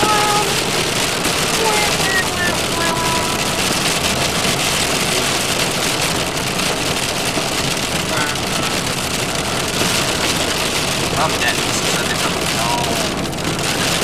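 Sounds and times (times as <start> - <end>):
car engine: 0.0 - 14.0
tyres on road: 0.0 - 14.0.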